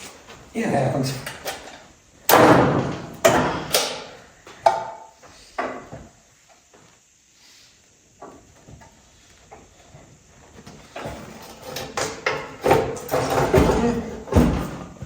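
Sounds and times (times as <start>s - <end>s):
sharp knocks and bangs: 2.3s - 4.0s.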